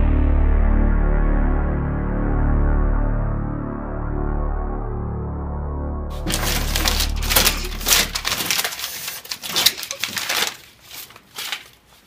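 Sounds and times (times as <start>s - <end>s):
paper crumpling and rustling: 6.1s - 12.0s.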